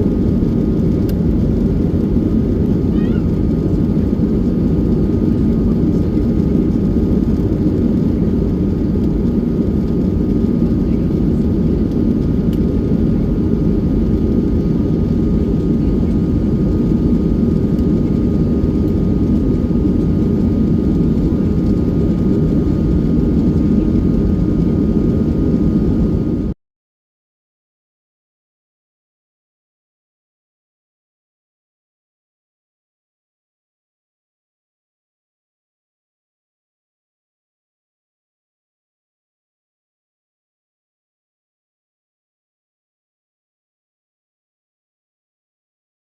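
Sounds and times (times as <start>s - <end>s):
jet engine cabin rush: 0.0s - 26.6s.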